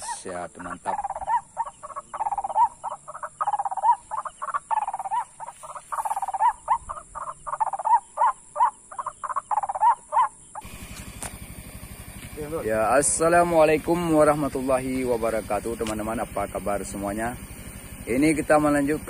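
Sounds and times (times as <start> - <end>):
bird call rapid short notes: 0.0 - 11.4
high-pitched insect hum: 0.0 - 19.0.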